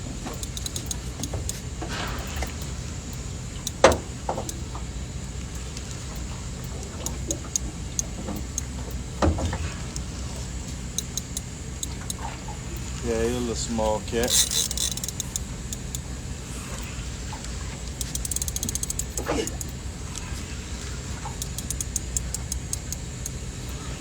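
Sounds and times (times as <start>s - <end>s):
faint clicks: 0.0s - 24.0s
low motor hum: 0.0s - 24.0s.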